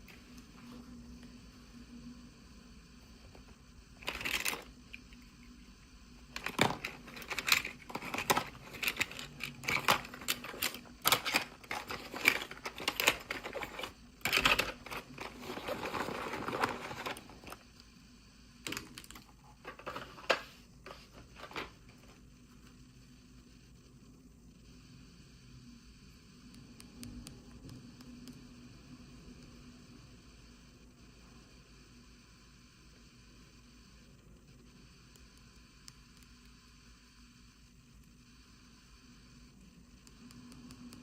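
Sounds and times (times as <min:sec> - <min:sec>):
plastic toy pieces clicking: 0:06.4 - 0:15.7
packaging rustling: 0:06.4 - 0:17.6.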